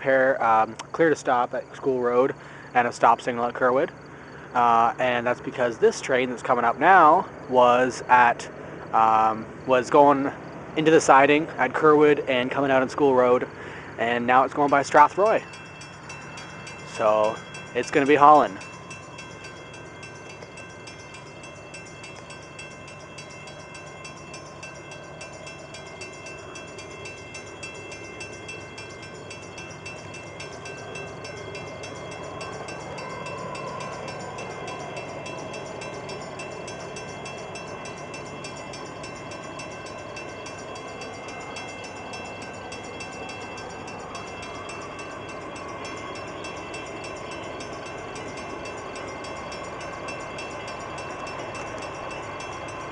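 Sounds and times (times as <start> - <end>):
train wheels rumbling on rails: 9.2 - 52.9.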